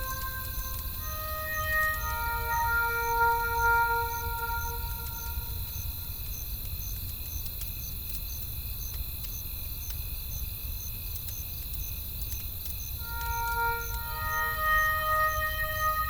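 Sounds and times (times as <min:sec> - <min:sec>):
held musical tone: 0:00.0 - 0:06.1, 0:13.0 - 0:16.0
campfire crackling: 0:00.0 - 0:16.0
crickets chirping: 0:00.0 - 0:16.0.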